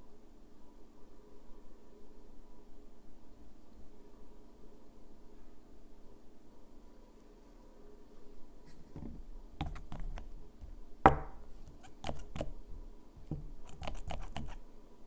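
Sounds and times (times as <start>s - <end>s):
small items tapping on hard surface: 9.0s - 12.6s
sharp knock: 11.1s - 11.4s.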